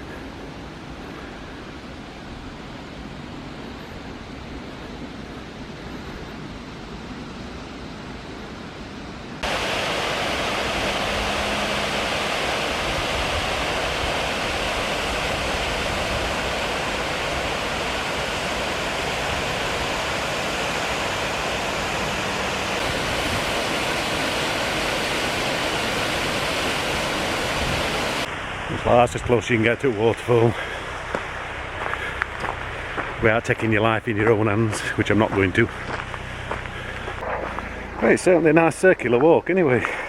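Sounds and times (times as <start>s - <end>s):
distant rush of water: 0.0s - 40.0s
waterfall rushing water: 9.4s - 32.7s.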